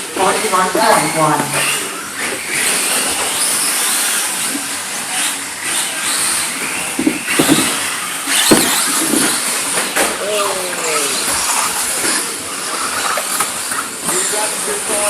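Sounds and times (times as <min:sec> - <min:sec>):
radio-controlled car whirring: 0:00.0 - 0:15.0.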